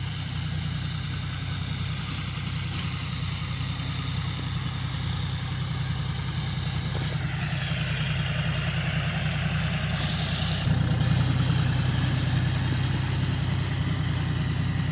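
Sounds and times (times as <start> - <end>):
tractor engine running: 0.0 - 14.9
hiss: 6.9 - 10.7.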